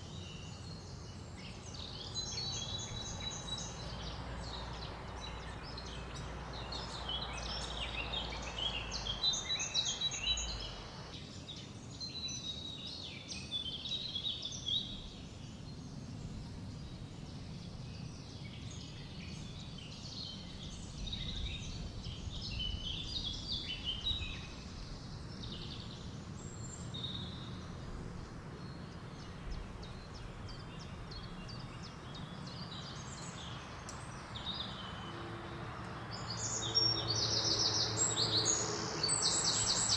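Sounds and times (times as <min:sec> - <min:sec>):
low rush of wind: 0:00.0 - 0:11.9, 0:13.8 - 0:39.9
small birds chirping: 0:00.0 - 0:39.9
background hiss: 0:02.8 - 0:11.1.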